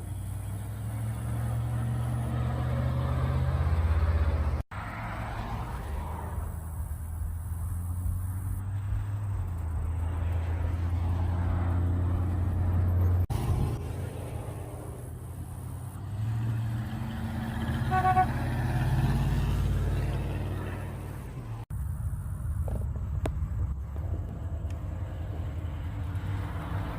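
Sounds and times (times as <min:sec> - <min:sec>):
car engines running: 0:00.0 - 0:26.9
car horn honk: 0:17.7 - 0:18.7.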